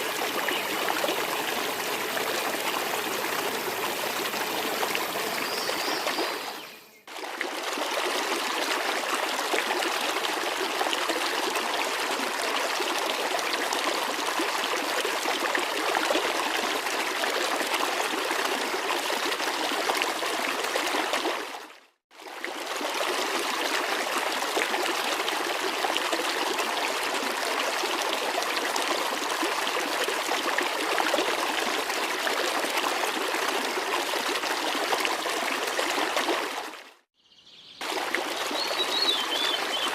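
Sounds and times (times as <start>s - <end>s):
waterfall rushing and splashing: 0.0s - 6.6s.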